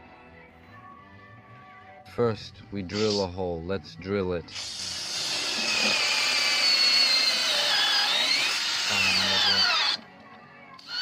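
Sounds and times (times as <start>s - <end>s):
electric drill boring into wood: 3.0s - 3.2s, 4.5s - 10.0s, 10.8s - 11.0s.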